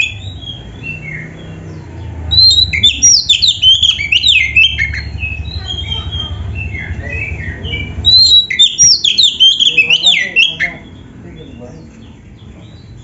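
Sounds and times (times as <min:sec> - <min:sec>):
bird singing: 0:00.0 - 0:13.0.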